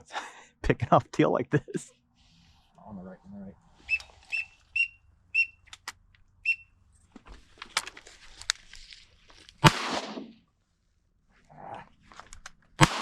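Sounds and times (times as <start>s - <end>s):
short high whistles: 3.8s - 5.6s, 6.4s - 6.7s
shotgun shot: 9.6s - 10.4s, 12.8s - 13.0s.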